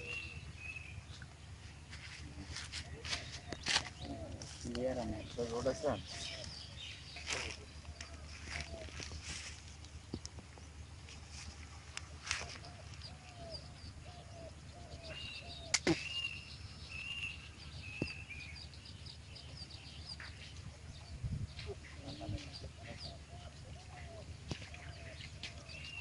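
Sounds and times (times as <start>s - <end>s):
birds calling: 0.0s - 26.0s
steady low rumble: 0.0s - 26.0s
sharp click: 15.7s - 16.0s.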